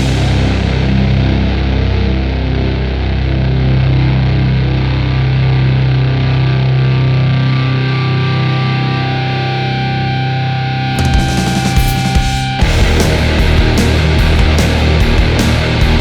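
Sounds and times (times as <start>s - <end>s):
rock band with drums: 0.0s - 2.6s, 10.9s - 16.0s
distorted electric guitar drone: 0.0s - 16.0s.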